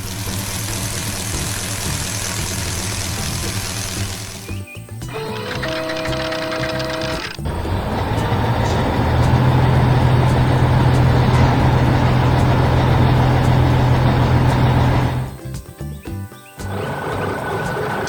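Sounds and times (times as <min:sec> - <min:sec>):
heavy machine engine droning: 0:05.1 - 0:15.4, 0:16.6 - 0:18.0.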